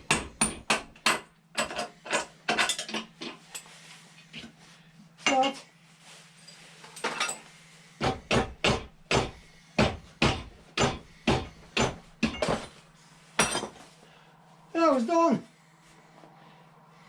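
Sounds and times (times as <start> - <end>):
hand hammer striking: 0.0 - 1.8, 8.0 - 12.7.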